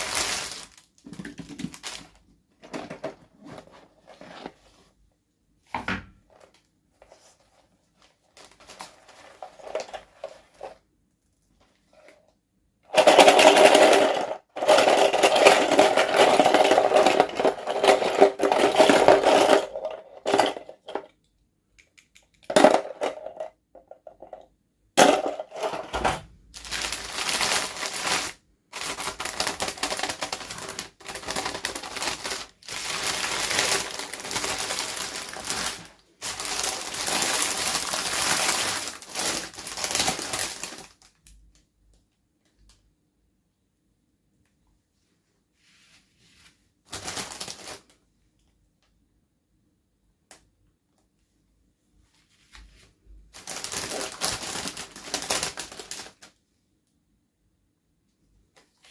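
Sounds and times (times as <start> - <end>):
plastic and cardboard packaging rustling: 0.0 - 5.0, 6.3 - 10.9, 12.9 - 21.1, 25.0 - 41.5, 46.0 - 48.0, 52.3 - 56.4.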